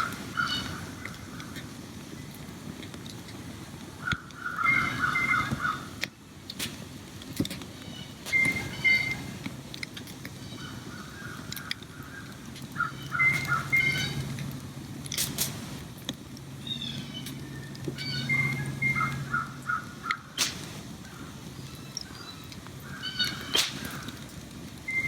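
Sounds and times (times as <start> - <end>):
birds calling: 0.0 - 2.3, 4.0 - 6.1, 7.8 - 9.4, 10.3 - 14.4, 16.5 - 25.0.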